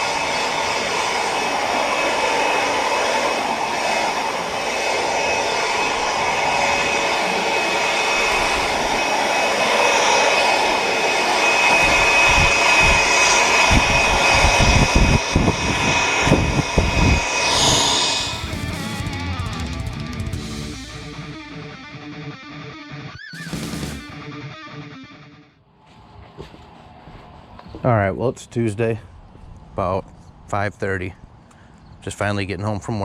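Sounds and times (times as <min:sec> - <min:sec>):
electric sander whining on metal: 0:00.0 - 0:21.5.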